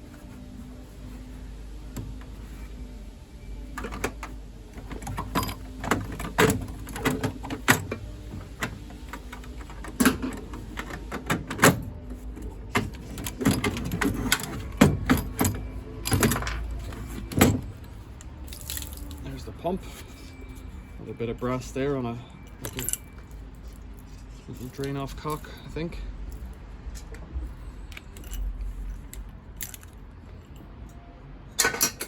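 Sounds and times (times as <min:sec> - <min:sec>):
metallic clicks and rattles: 0:27.9 - 0:30.6.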